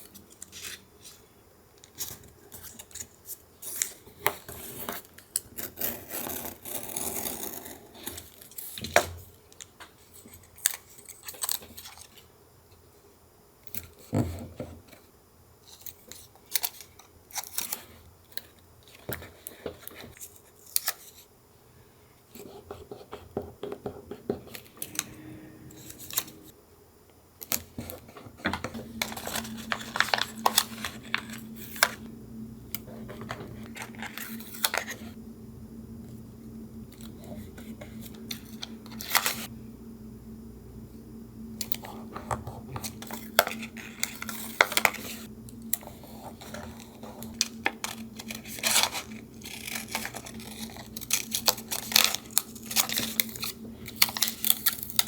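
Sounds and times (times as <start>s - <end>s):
low steady hum: 24.2s - 55.0s
scissors snipping paper: 46.6s - 55.0s.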